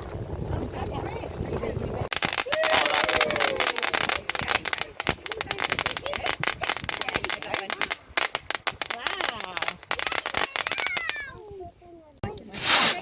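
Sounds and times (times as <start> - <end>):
firework crackling and hissing: 0.0 - 11.4, 12.4 - 13.0.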